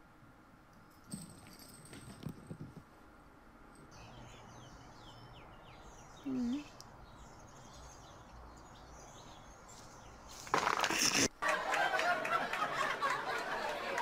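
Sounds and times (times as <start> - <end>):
faint bird chirping: 3.8 - 10.4.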